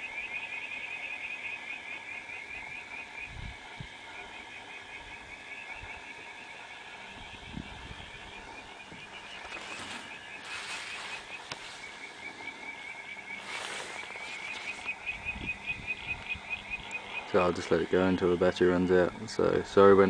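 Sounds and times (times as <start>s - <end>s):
frogs chirping: 0.0s - 20.0s.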